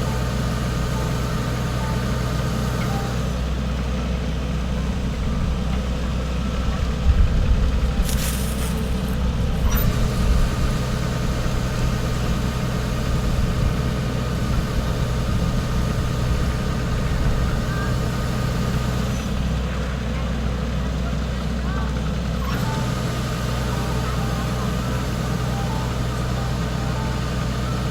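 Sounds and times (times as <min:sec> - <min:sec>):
harvester engine rumbling: 0:00.0 - 0:27.9
short hiss: 0:08.0 - 0:09.2
steady higher hum: 0:22.7 - 0:27.9.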